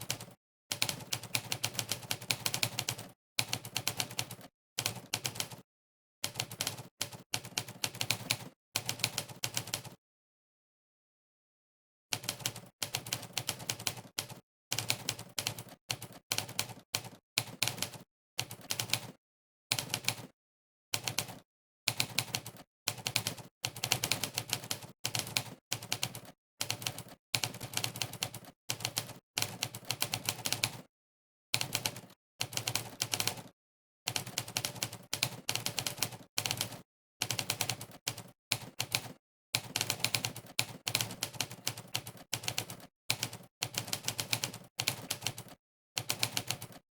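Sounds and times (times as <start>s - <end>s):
typewriter keystroke clacks: 34.1s - 46.8s.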